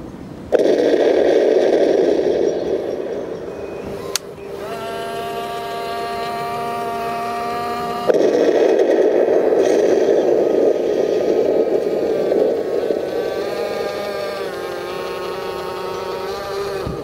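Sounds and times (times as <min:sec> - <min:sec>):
rough grinding noise: 0:02.2 - 0:17.0
model tank motor whining: 0:03.6 - 0:08.1, 0:09.6 - 0:17.0.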